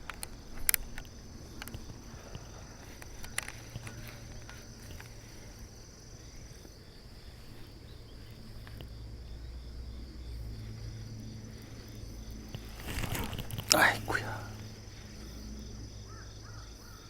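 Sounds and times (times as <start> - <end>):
insects trilling: 0.0 - 17.0
low steady rumble: 4.6 - 16.8.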